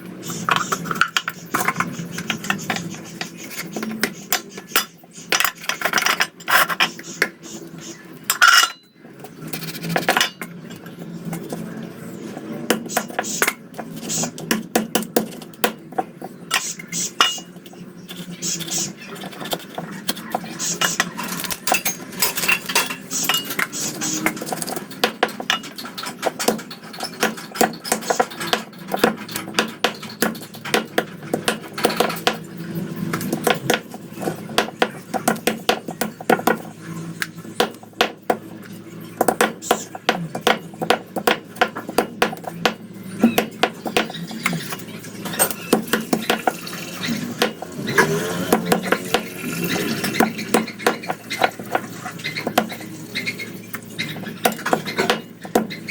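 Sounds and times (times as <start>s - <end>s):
knife and utensils knocking dishes: 39.2s - 52.8s.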